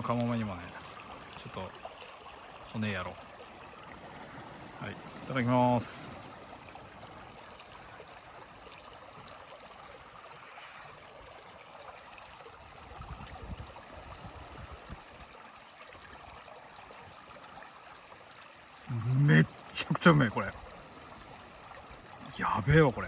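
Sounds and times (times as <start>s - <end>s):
river rushing: 0.0s - 12.5s.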